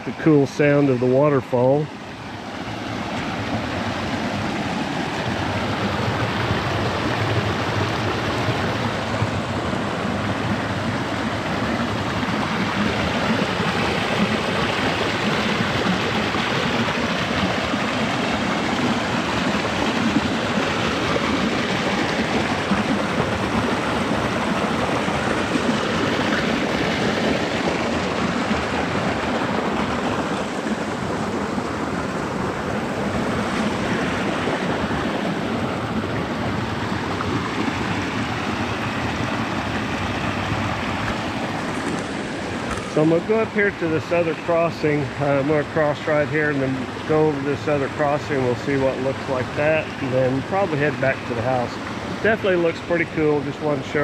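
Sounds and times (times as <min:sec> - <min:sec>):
stream rushing over waterfall: 0:00.0 - 0:54.0.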